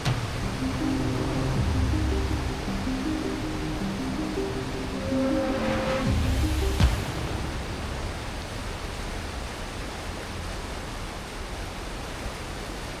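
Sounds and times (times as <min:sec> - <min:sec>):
water rushing: 0:00.0 - 0:13.0
short hit: 0:05.0 - 0:08.8.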